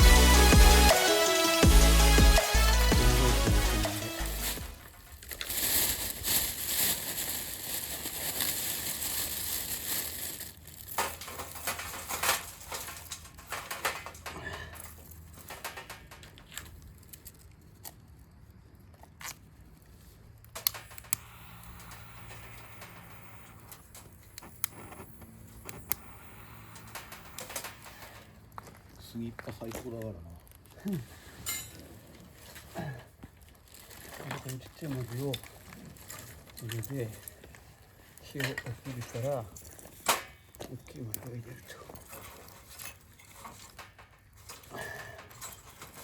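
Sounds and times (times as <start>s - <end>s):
fire crackling and snapping: 0.0s - 46.0s
kindling rustling and crinkling: 2.5s - 18.2s, 18.8s - 46.0s.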